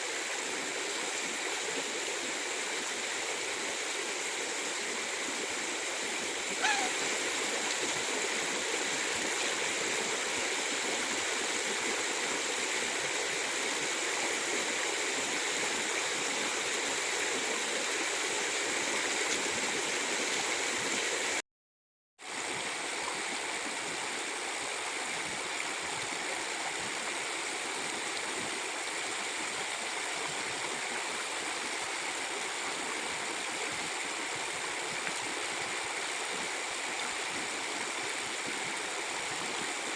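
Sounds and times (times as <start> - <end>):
stream rushing and gurgling: 0.0 - 21.4, 22.2 - 39.9.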